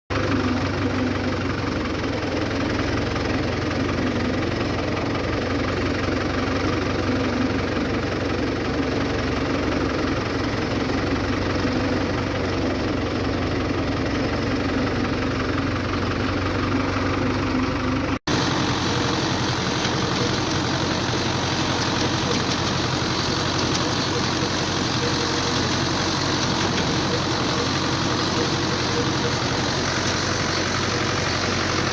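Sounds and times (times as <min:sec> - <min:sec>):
tractor diesel engine running: 0:00.1 - 0:31.9.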